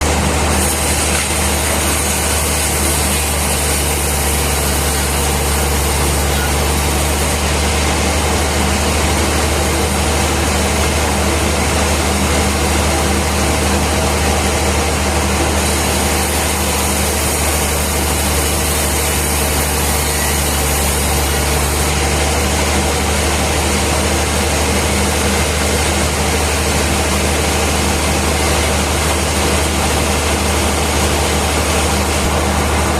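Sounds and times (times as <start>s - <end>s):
heavy engine idling: 0.0s - 32.9s
hiss: 0.6s - 7.2s.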